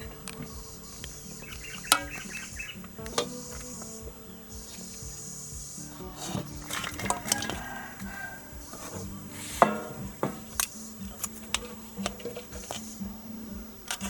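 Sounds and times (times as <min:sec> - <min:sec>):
utensils clinking against pots: 0:01.3 - 0:04.0, 0:06.0 - 0:12.8.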